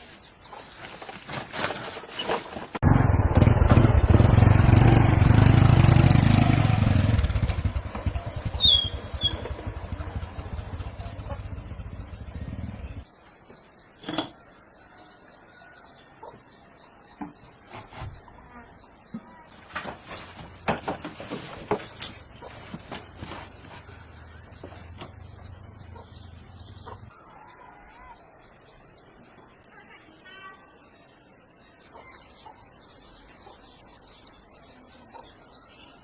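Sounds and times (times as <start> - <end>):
small engine running: 2.8 - 13.0.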